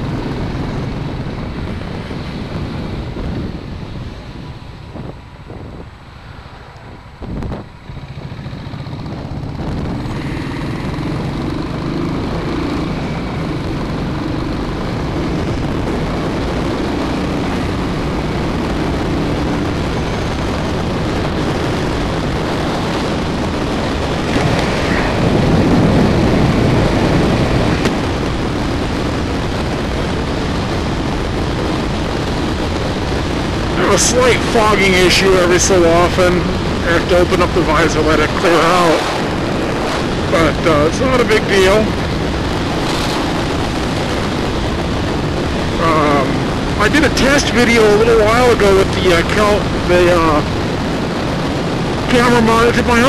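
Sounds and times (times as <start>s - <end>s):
motorcycle engine running: 0.0s - 47.6s
wind noise on microphone: 0.0s - 53.0s.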